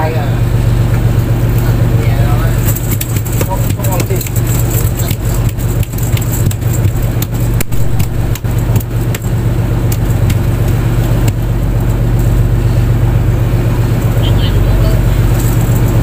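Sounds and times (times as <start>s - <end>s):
boat engine running: 0.0s - 16.0s
sharp knocks: 2.6s - 11.6s.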